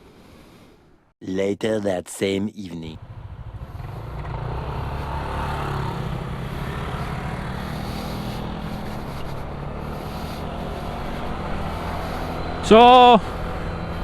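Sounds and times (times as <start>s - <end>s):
motor scooter engine running: 3.0s - 14.0s
road and wind noise: 3.0s - 14.0s.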